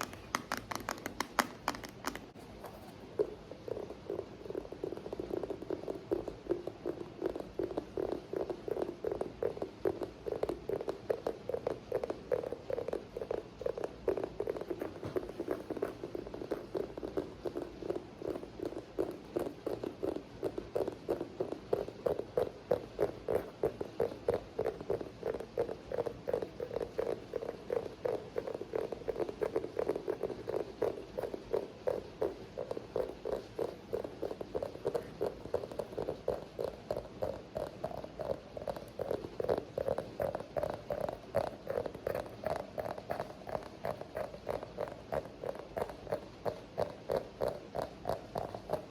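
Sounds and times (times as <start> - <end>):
quick hollow tapping: 0.0 - 3.2.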